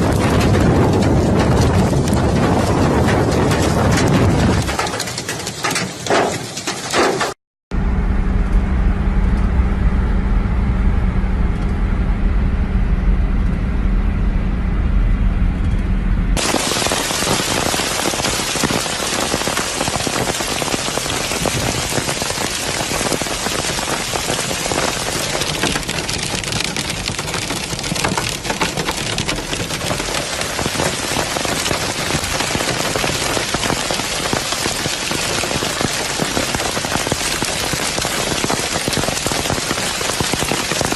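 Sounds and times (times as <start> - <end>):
heavy rain pelting: 0.0 - 7.3, 16.4 - 40.9
low steady rumble: 7.7 - 19.8.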